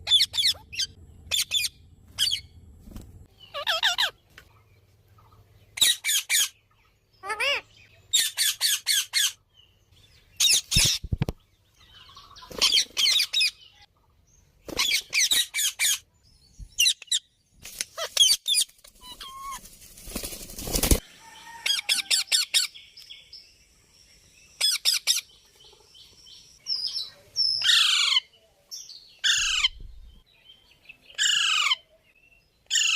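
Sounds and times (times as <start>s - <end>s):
parrot calling: 0.0s - 2.4s, 3.4s - 4.2s, 7.2s - 9.4s
parrot screeching: 3.6s - 4.1s, 7.2s - 7.6s.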